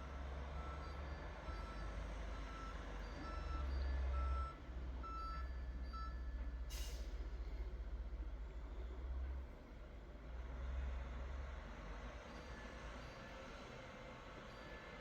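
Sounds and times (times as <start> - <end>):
truck reversing alarm beeping: 0.0 - 7.0.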